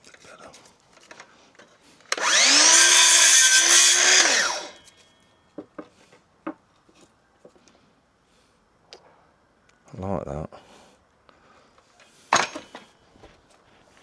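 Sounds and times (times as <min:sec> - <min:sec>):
power drill spinning: 0:02.1 - 0:04.9.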